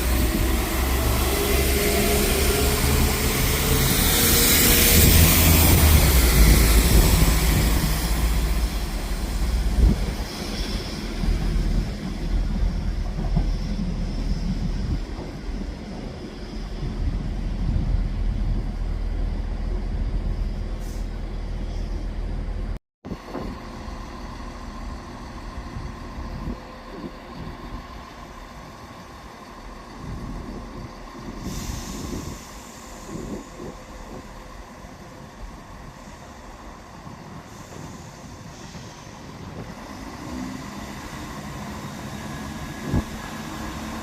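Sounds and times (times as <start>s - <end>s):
train rumbling: 0.0s - 44.0s
hiss of air: 31.3s - 33.8s.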